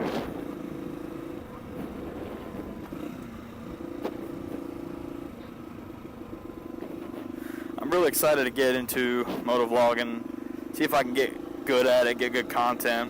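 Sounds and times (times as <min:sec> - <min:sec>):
wind rumbling on microphone: 0:00.0 - 0:07.3
motorcycle engine running: 0:00.0 - 0:13.0.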